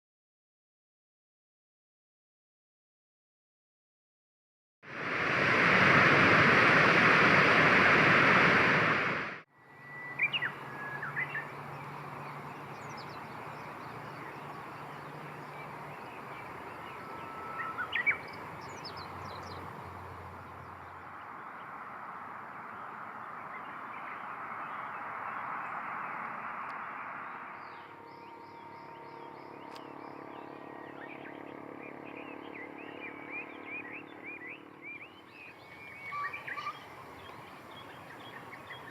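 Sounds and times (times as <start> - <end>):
loud rushing noise: 4.9 - 9.4
bird chirps: 9.6 - 21.8, 22.5 - 38.9.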